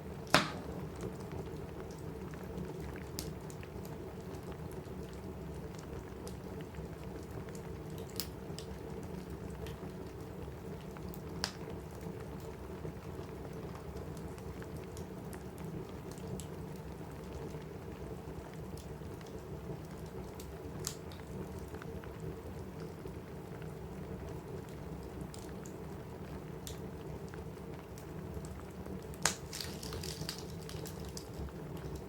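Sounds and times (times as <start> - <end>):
rain pattering on a roof: 0.0 - 32.0
wood fire crackling: 0.0 - 32.0
sharp pops from fire: 0.2 - 1.3, 11.4 - 11.6, 29.1 - 31.4.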